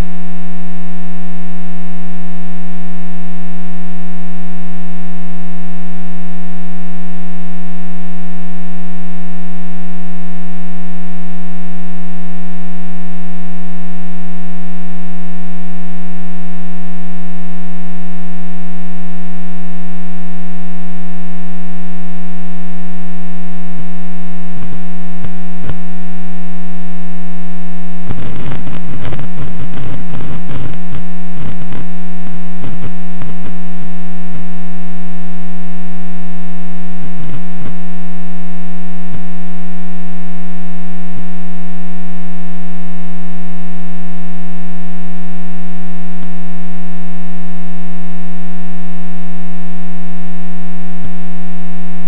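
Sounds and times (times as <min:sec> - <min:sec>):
crackling: 0:28.0 - 0:31.9
electrical hum: 0:28.0 - 0:31.9.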